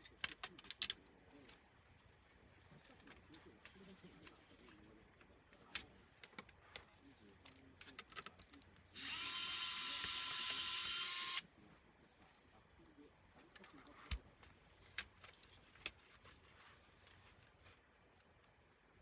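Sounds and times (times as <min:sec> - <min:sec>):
clicks and taps of small parts: 0:00.1 - 0:01.6, 0:05.7 - 0:08.8
electric screwdriver running: 0:09.0 - 0:11.4.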